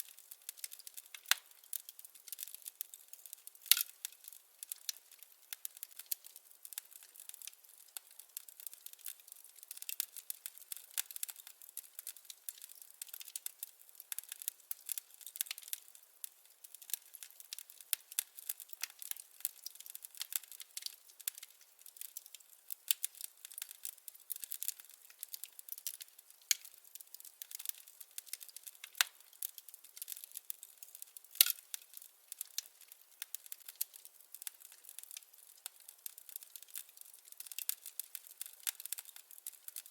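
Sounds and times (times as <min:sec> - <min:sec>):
firewood crackling: 0:00.0 - 0:39.9.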